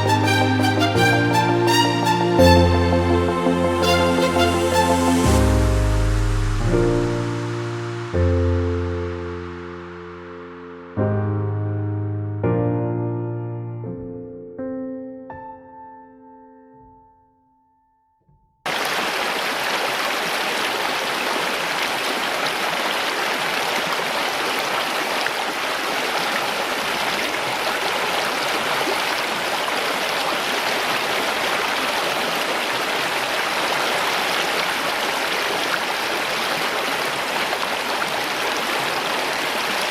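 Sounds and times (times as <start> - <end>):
running water rushing: 0.0 - 10.6, 18.7 - 39.9.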